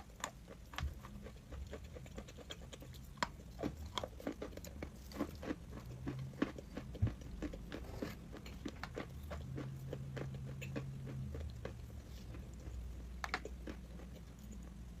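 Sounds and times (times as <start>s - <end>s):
chewing crunchy chalk: 0.0s - 15.0s.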